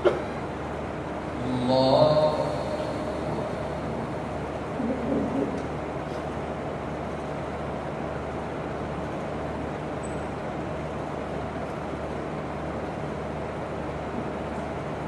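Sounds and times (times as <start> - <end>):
low hum: 0.0 - 6.1.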